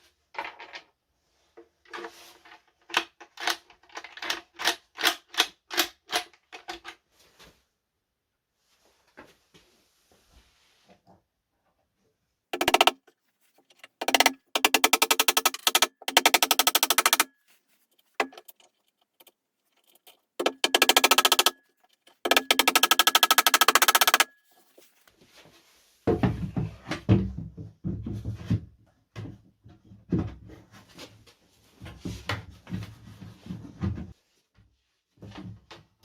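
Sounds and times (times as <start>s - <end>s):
power tool buzzing: 13.9s - 17.3s.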